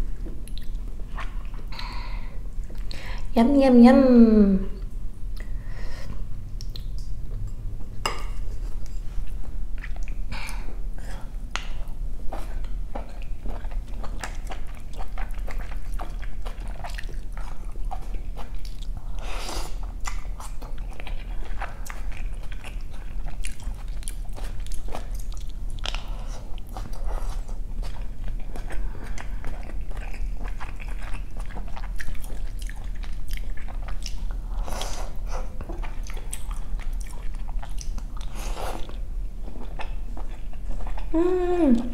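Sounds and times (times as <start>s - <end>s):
wet chewing: 11.5s - 19.2s, 19.8s - 41.9s.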